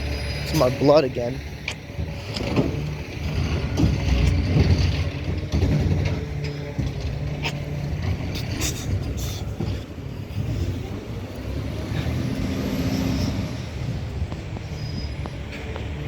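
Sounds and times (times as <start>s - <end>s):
garbage truck diesel engine running: 0.0s - 16.0s
sharp clanks: 1.6s - 9.9s.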